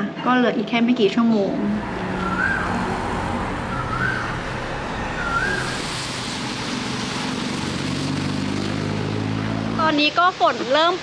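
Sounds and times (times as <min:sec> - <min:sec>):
wet road street noise: 0:01.4 - 0:11.0
rising whistled notes: 0:01.6 - 0:07.0
rain hissing: 0:01.6 - 0:10.6.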